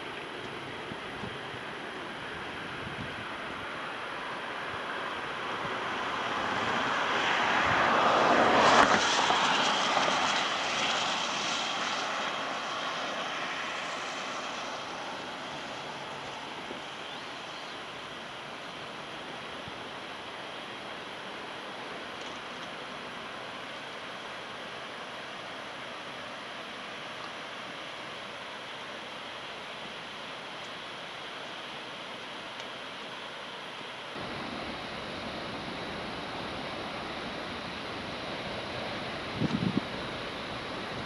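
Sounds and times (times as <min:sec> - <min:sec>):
steady background rush: 0:34.2 - 0:41.0.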